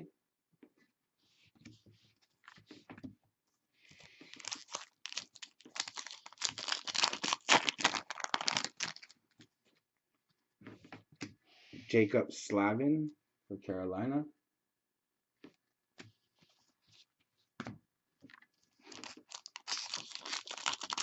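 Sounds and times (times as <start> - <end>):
foil wrapper tearing and crinkling: 4.2 - 9.2, 18.8 - 21.0.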